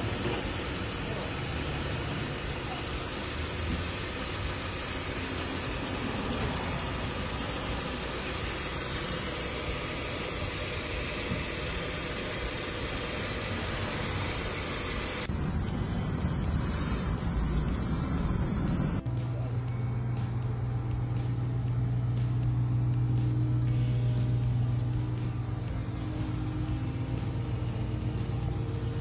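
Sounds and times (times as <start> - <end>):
steady hiss: 0.0 - 19.0
deeper engine running: 0.0 - 29.0
vehicle engine idling: 0.0 - 29.0.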